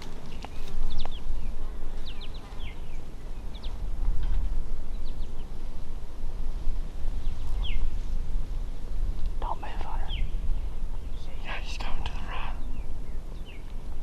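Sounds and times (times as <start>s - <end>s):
small birds chirping: 0.0s - 5.8s, 7.1s - 8.1s, 9.1s - 14.0s
steady low rumble: 0.0s - 14.0s.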